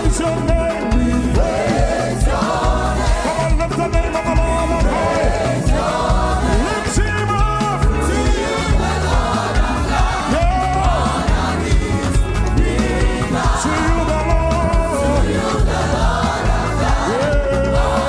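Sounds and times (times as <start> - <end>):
bass line: 0.0 - 18.0
drums keeping a steady beat: 0.0 - 18.0
voices singing gospel: 0.0 - 18.0.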